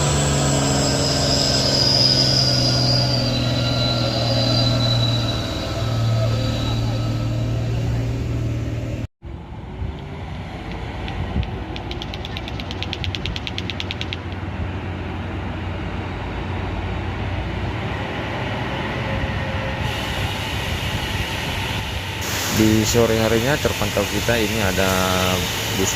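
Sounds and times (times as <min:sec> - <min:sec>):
fast light ticking: 0:10.7 - 0:14.4.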